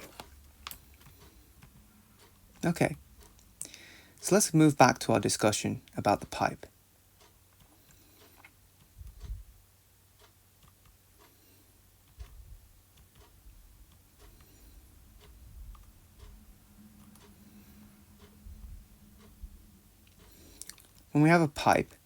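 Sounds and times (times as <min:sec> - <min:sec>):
faint clicks and light taps: 0:00.0 - 0:03.8, 0:07.2 - 0:09.5, 0:10.2 - 0:16.4.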